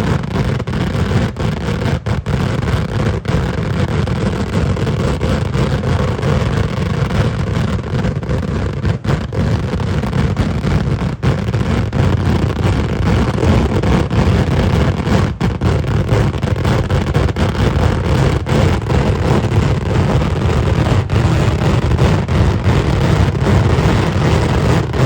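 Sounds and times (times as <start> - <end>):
firecracker blasts rumbling: 0.0 - 25.0.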